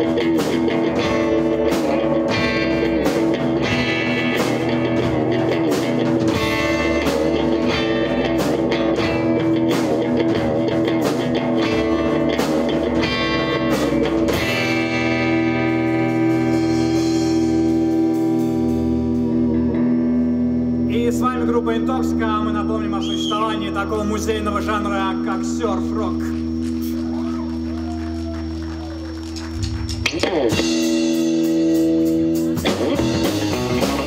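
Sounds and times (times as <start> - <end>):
drum kit: 0.0 - 19.9, 26.6 - 34.0
electric guitar: 0.0 - 34.0.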